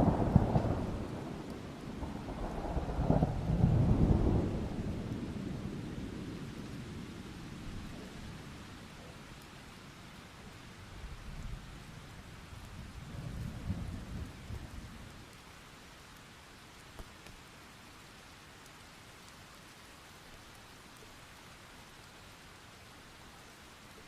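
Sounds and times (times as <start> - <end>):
distant thunder rolling: 0.0 - 7.0
steady rain falling: 0.0 - 24.0.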